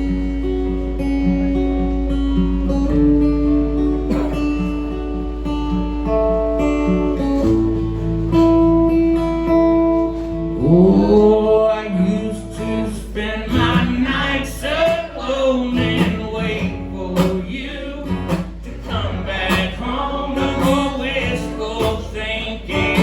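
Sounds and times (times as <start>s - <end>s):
guitar strumming: 0.0s - 23.0s
person singing: 10.6s - 23.0s.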